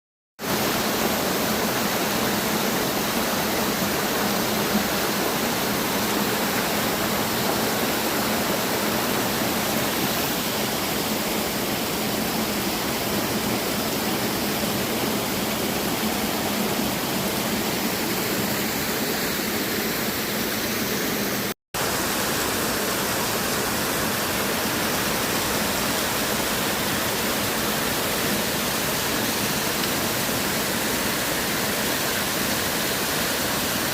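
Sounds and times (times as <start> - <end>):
waterfall rushing: 0.4 - 33.9.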